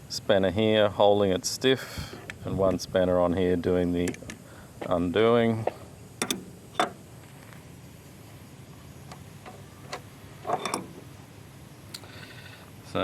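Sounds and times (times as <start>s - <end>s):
spanners clicking on metal fitting: 6.2s - 7.0s, 10.5s - 11.0s.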